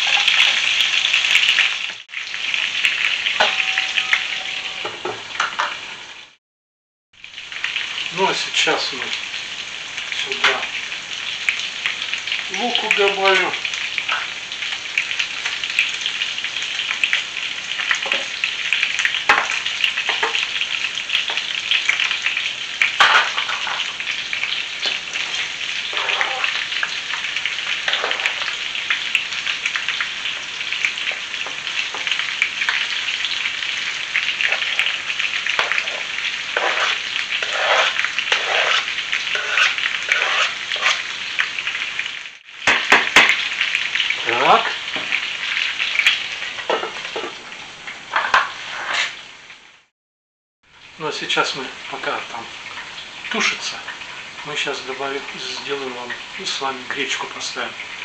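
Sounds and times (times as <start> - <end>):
meat sizzling in a frying pan: 0.0 - 6.4, 7.2 - 49.9, 50.7 - 58.0
tongs and spatula scraping pan: 24.8 - 26.7, 27.6 - 28.6, 34.4 - 41.2, 48.1 - 49.2.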